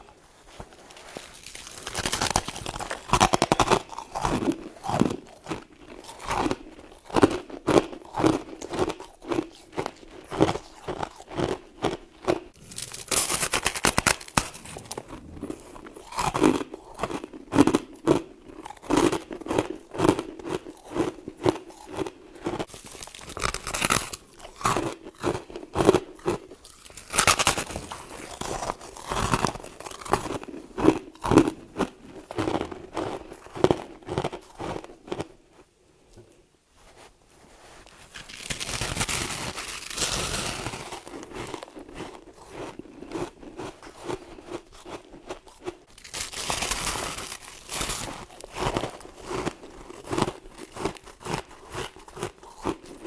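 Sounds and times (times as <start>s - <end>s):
crunching and chewing frost: 0.0s - 53.0s.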